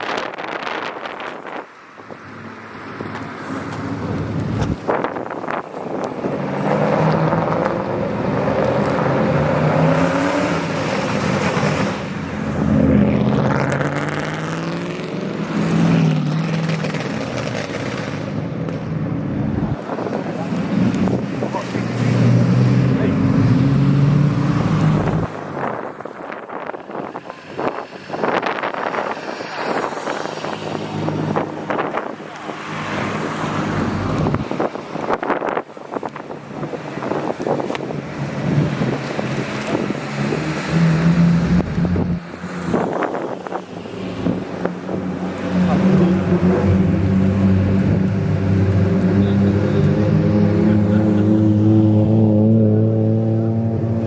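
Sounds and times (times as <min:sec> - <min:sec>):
wind buffeting the microphone: 0:03.9 - 0:06.4, 0:24.5 - 0:40.6
car engine revving: 0:04.1 - 0:18.5, 0:19.3 - 0:54.0.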